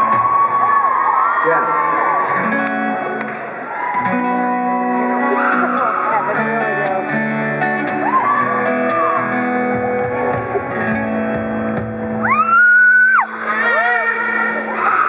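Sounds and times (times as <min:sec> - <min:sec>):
live band with guitar: 0:00.0 - 0:15.0
person singing long held note: 0:13.3 - 0:15.0.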